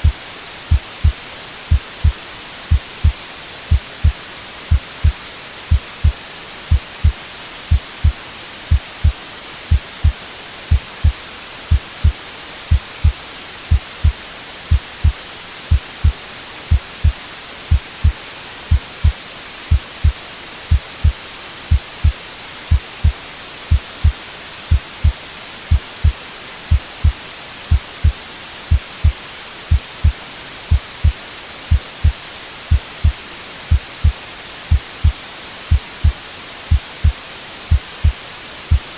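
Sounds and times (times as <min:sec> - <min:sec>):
white-noise hiss: 0:00.0 - 0:38.9
heartbeat double thump: 0:06.7 - 0:11.8, 0:14.7 - 0:15.8, 0:17.7 - 0:30.1, 0:31.7 - 0:36.8.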